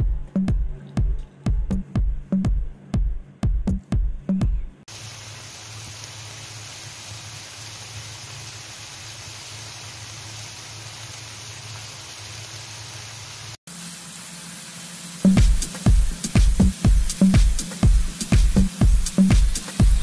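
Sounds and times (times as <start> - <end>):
meat sizzling in a pan: 4.9 - 20.0.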